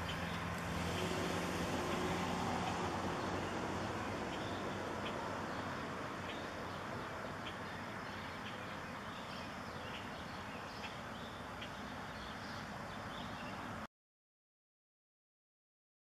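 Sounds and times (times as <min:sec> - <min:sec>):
diesel train rumble: 0:00.0 - 0:09.1
bird chirps: 0:01.9 - 0:13.7.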